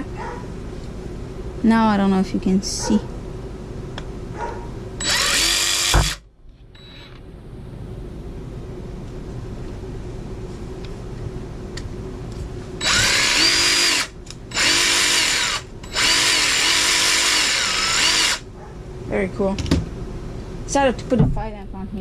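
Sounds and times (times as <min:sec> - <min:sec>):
jigsaw motor whining: 0:05.0 - 0:06.2, 0:12.8 - 0:18.4.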